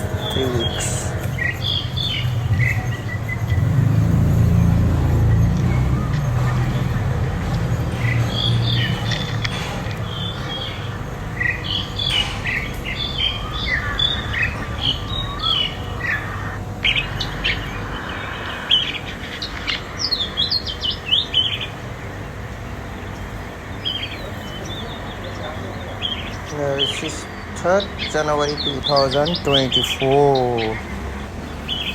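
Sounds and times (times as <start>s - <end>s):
small birds chirping and trilling: 0.0s - 31.9s.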